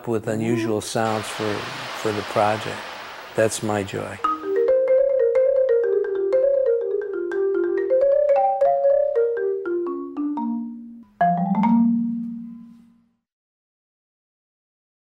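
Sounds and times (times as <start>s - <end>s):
marimba-like mallet notes: 4.2s - 12.8s.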